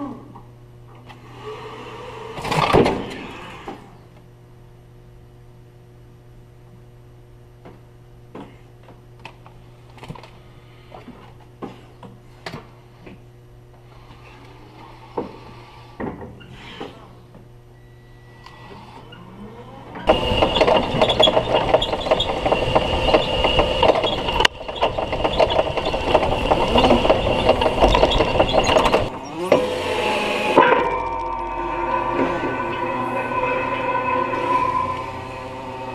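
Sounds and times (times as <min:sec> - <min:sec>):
steady low hum: 0:00.0 - 0:35.9
small electric motor whine: 0:17.8 - 0:35.9
sharp clicks and knocks: 0:20.1 - 0:29.8.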